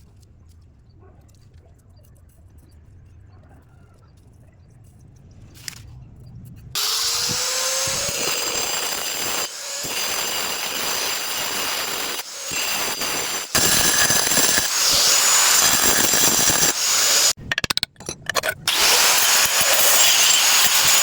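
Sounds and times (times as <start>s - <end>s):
power tool cutting tile: 6.8s - 17.7s, 18.6s - 21.0s.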